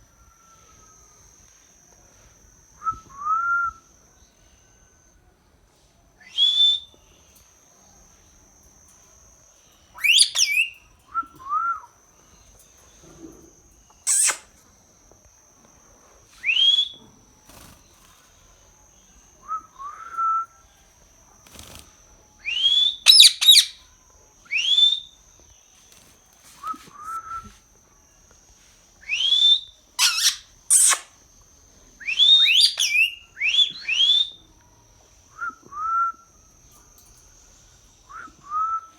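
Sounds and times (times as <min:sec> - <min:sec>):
faint steady high tone: 0:00.0 - 0:30.6
parrot whistling: 0:10.0 - 0:10.7, 0:14.0 - 0:14.5, 0:22.4 - 0:23.8, 0:29.0 - 0:31.1, 0:32.0 - 0:34.4.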